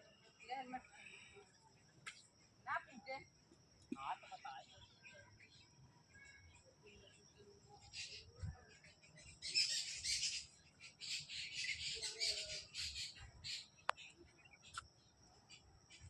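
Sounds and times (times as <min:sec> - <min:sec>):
birds squawking: 0:09.3 - 0:13.7.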